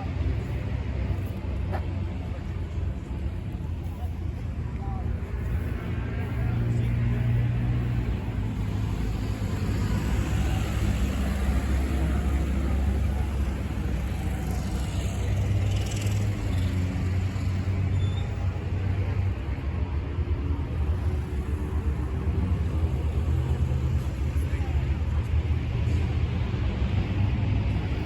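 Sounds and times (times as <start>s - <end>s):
engine running low rumble: 0.0s - 28.0s.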